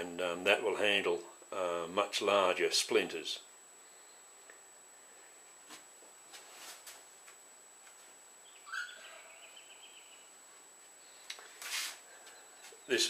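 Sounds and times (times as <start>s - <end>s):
trilling bird call: 8.4s - 10.3s.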